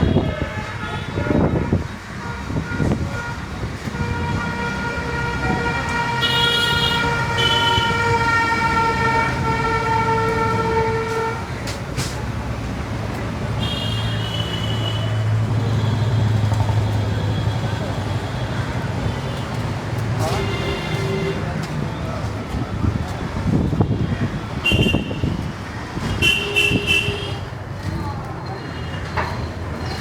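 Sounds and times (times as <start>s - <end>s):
vehicle engines running: 1.1s - 30.0s
long held car horn: 4.0s - 11.4s, 13.6s - 15.1s, 26.2s - 27.4s.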